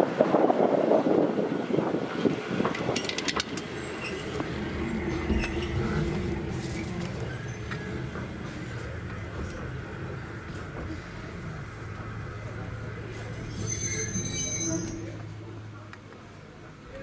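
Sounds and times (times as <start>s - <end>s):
train wheels rumbling on rails: 0.0s - 15.7s.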